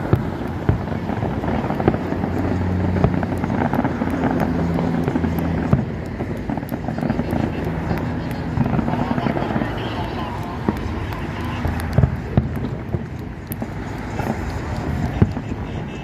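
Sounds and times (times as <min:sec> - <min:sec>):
continuous rumble: 0:00.0 - 0:16.0
fireworks crackling and popping: 0:00.0 - 0:16.0.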